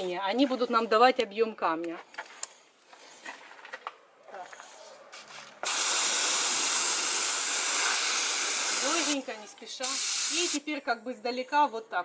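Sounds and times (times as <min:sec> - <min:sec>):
paint spray gun hissing: 0:05.6 - 0:10.6.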